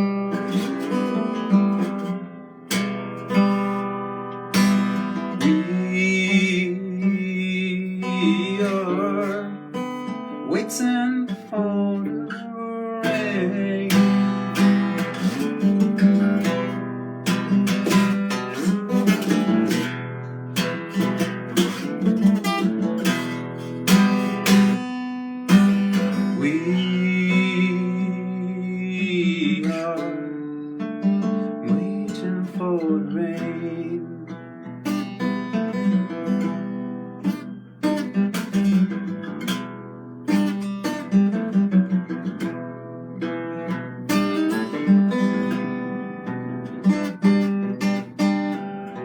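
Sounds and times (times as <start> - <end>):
guitar strumming chords: 0.0 - 49.0
person singing: 5.1 - 16.7, 25.9 - 34.5.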